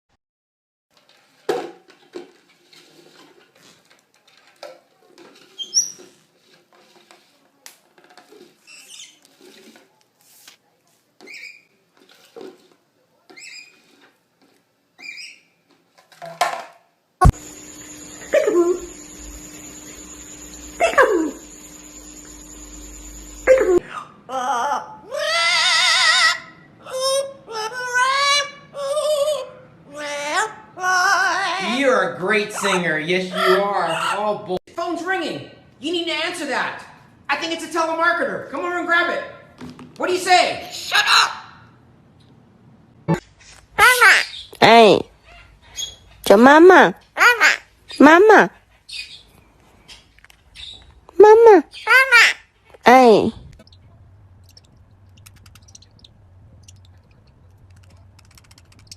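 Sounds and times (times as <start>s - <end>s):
rustling: 0.9s - 11.1s
baby parrot chirping: 43.8s - 44.6s, 50.6s - 50.9s, 51.7s - 52.4s, 54.4s - 57.1s
parrot singing operatically: 50.6s - 53.8s.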